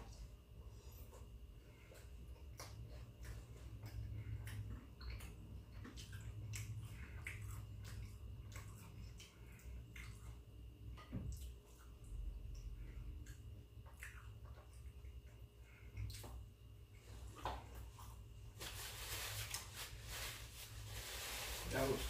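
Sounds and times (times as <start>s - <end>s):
chewing with wet mouth smacks: 1.0s - 16.5s.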